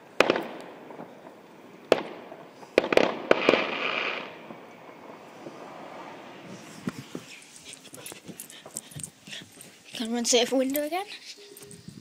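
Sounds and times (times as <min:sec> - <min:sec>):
fireworks bangs: 0:00.0 - 0:08.8
fireworks crackling: 0:00.0 - 0:08.8.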